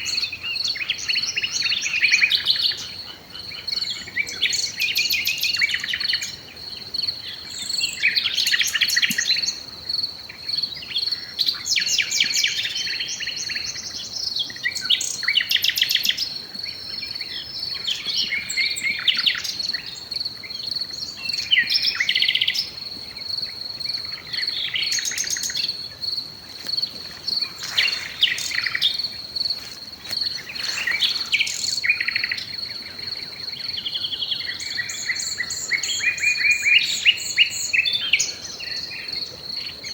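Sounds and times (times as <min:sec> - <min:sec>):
songbirds singing and chirping: 0:00.0 - 0:39.9
insect high-pitched trill: 0:17.0 - 0:39.9.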